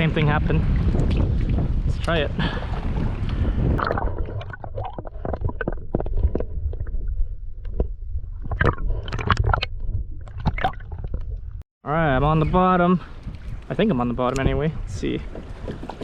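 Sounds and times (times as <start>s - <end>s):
water sloshing against kayak hull: 13.1s - 16.0s.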